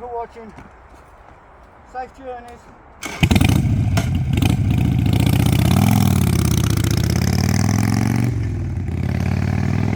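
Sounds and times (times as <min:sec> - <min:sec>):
vehicle engine revving: 0:03.0 - 0:09.9.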